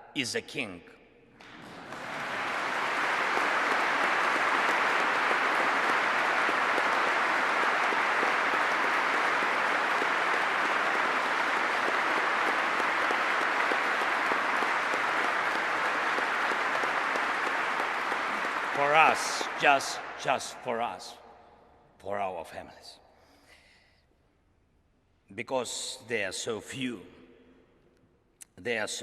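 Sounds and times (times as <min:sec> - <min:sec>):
large audience applauding: 0:01.4 - 0:20.6.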